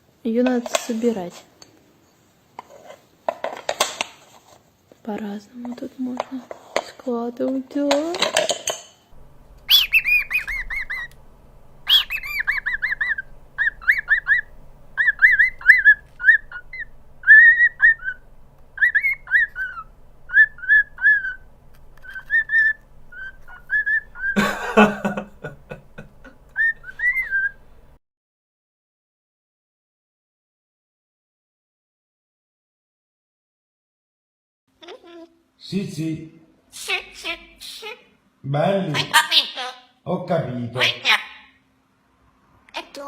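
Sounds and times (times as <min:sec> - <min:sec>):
parrot chirping and whistling: 0:09.6 - 0:24.5, 0:26.5 - 0:27.8.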